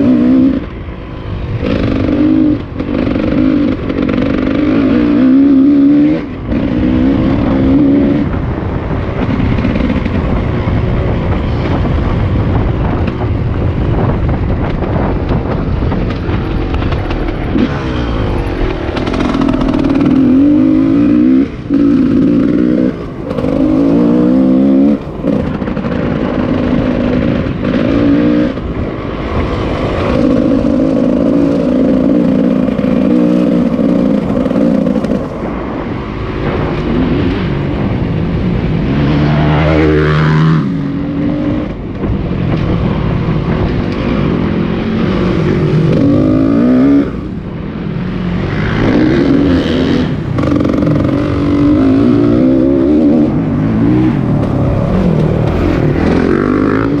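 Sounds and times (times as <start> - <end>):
car engine accelerating: 15.0 - 47.5.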